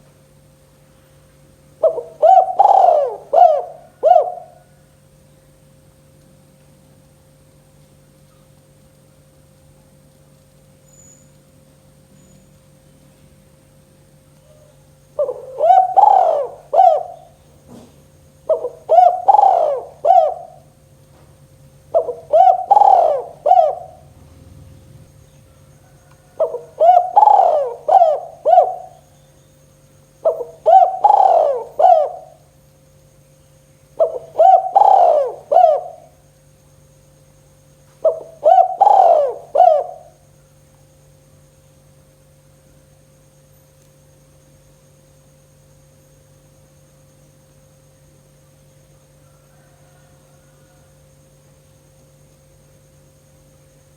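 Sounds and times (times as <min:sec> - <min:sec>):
faint steady hum: 0:00.0 - 0:53.9
dove cooing: 0:01.8 - 0:04.9, 0:14.5 - 0:29.2, 0:30.2 - 0:32.5, 0:34.0 - 0:36.2, 0:38.0 - 0:40.3, 0:49.2 - 0:50.9.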